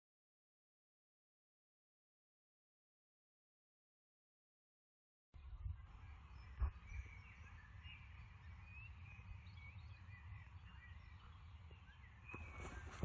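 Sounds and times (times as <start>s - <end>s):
distant birds chirping: 5.4s - 13.0s.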